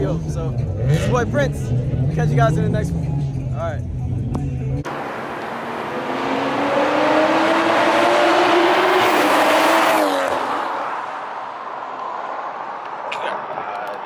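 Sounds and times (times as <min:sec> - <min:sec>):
car engine passing by: 0:04.9 - 0:13.2.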